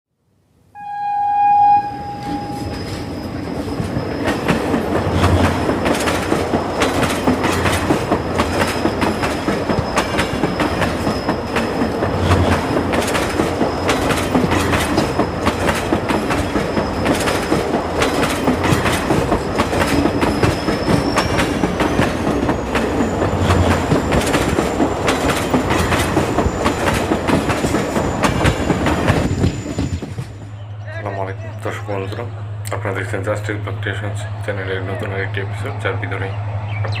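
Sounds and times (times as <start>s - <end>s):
train wheels clattering on track: 2.4s - 30.6s.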